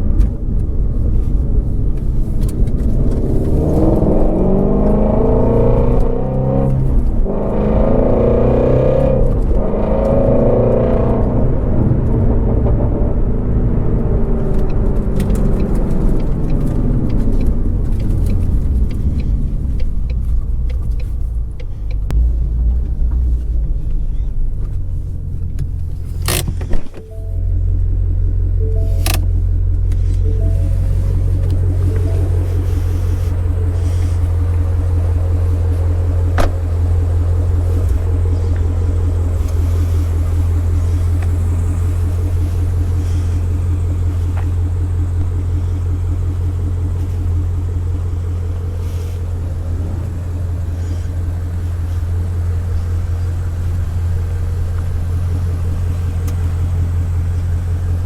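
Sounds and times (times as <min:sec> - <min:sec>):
car engine pulling hard: 0:00.0 - 0:58.0
exhaust crackles: 0:00.0 - 0:58.0.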